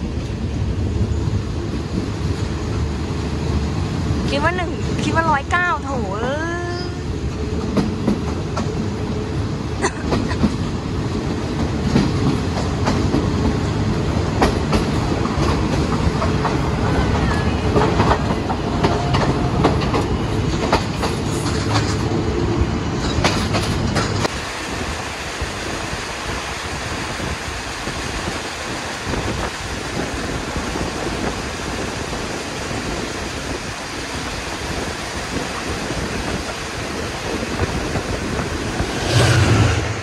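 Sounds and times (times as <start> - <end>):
train rumbling past: 0.0 - 40.0
wheels clacking over rail joints: 10.0 - 22.2, 22.9 - 24.4.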